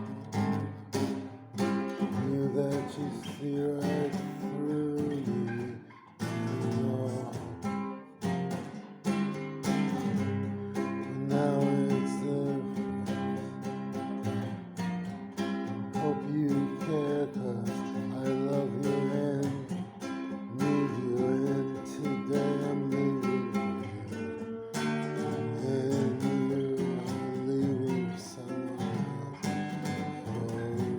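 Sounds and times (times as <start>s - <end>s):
acoustic guitar strummed and plucked: 0.0s - 30.9s
person singing: 2.1s - 8.1s, 10.1s - 13.7s, 15.9s - 30.9s.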